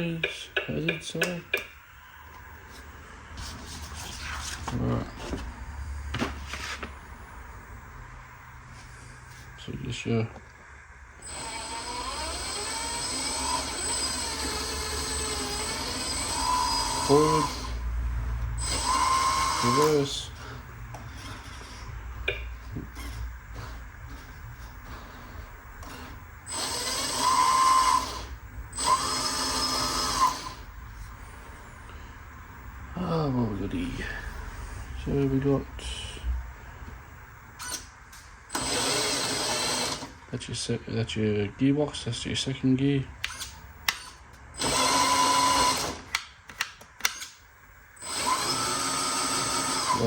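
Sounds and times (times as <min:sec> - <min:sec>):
electric motor and gearbox whining: 0:11.2 - 0:30.8, 0:37.5 - 0:37.9, 0:38.5 - 0:40.2, 0:43.2 - 0:47.4, 0:48.0 - 0:50.0.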